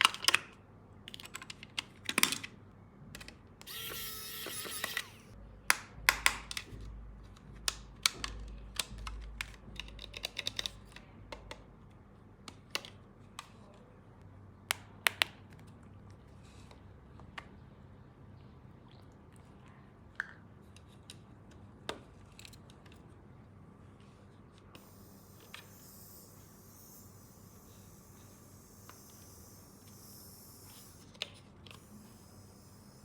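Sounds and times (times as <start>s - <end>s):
toy motor whir: 3.6s - 5.4s, 24.8s - 33.0s
plastic parts clicking and knocking: 5.7s - 11.6s.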